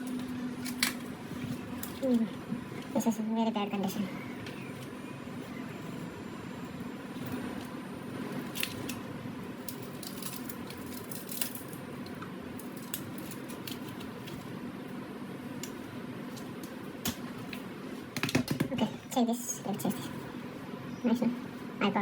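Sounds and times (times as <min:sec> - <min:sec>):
steady background hum: 0:00.0 - 0:22.0
small objects clicking and rustling: 0:09.6 - 0:14.5.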